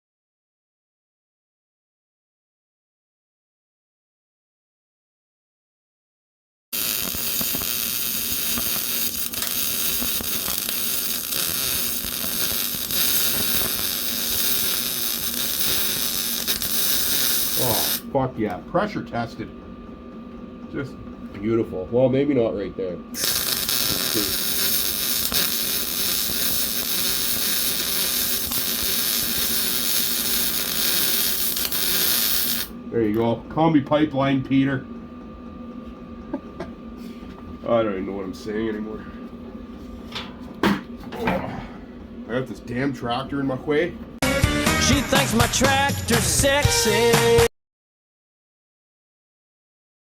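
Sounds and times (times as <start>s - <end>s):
arc welding crackle: 6.8s - 18.1s, 23.2s - 32.8s.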